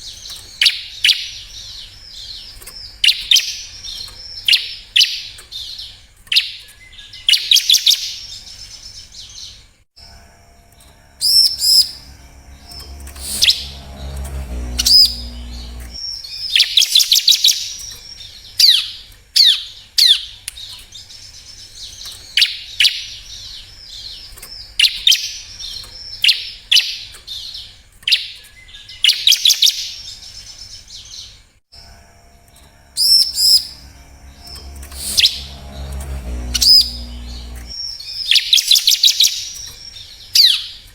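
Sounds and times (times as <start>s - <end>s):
low rumble: 10.6s - 16.0s, 32.2s - 37.8s.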